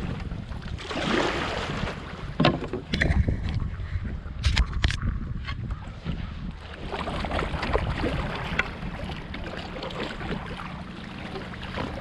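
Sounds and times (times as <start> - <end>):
paddle water splashes: 0.0 - 3.8, 5.8 - 12.0
wind rumble on microphone: 0.0 - 12.0.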